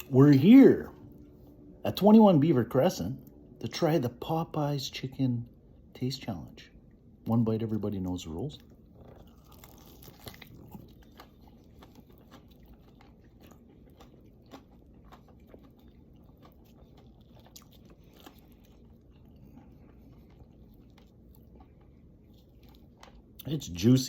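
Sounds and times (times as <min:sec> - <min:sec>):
chewing crispy fried chicken: 0:07.9 - 0:24.0.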